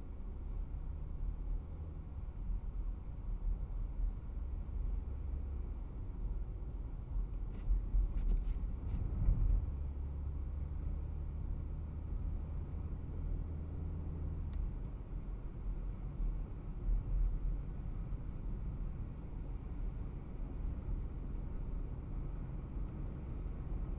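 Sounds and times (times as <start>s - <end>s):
car engine and tyres rumbling: 0.0s - 23.9s
faint ticks: 14.4s - 15.0s.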